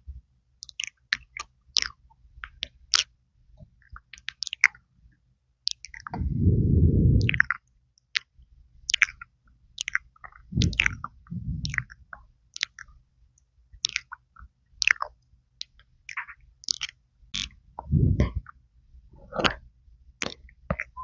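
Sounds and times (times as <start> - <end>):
wet mouth sounds: 5.7 - 7.6, 8.9 - 12.9, 13.8 - 15.2, 16.1 - 18.6, 19.2 - 19.6
breath puffs on microphone: 6.1 - 7.4, 10.5 - 12.0, 17.8 - 18.4.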